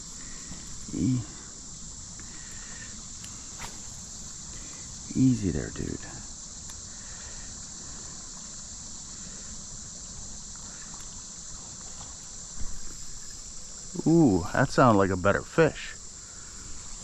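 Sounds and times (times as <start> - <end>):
crickets droning: 0.0 - 17.0
creek water running: 6.9 - 17.0.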